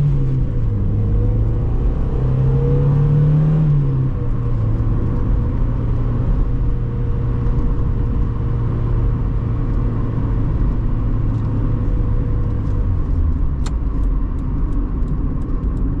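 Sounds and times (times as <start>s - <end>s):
road noise: 0.0s - 16.0s
car engine running: 3.7s - 16.0s.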